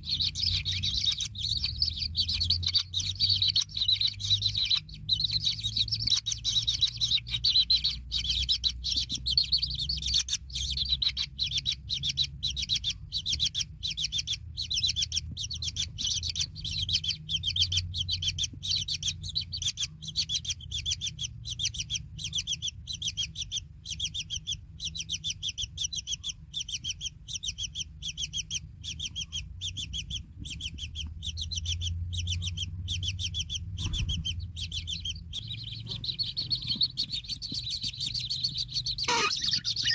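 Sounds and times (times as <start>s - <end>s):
chicks chirping: 0.0s - 39.9s
faint low hum: 0.0s - 39.9s.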